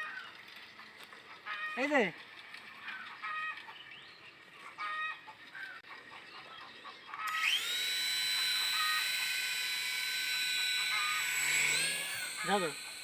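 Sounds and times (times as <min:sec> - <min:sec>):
toy helicopter rotor whine: 0:07.1 - 0:13.0.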